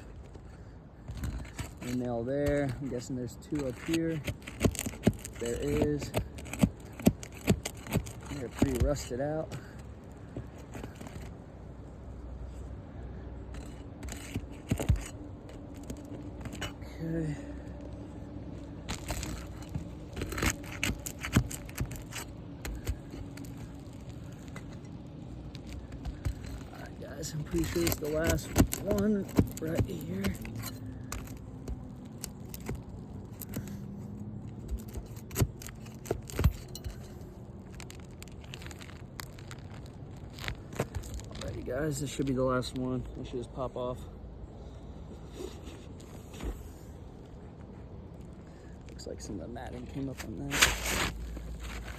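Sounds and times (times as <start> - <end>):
nails pried out of shingles: 0.0 - 12.2, 13.4 - 43.0, 49.9 - 51.9
scrapes and sharp clicks: 1.1 - 11.4, 13.5 - 16.9, 18.6 - 42.9, 50.0 - 51.9.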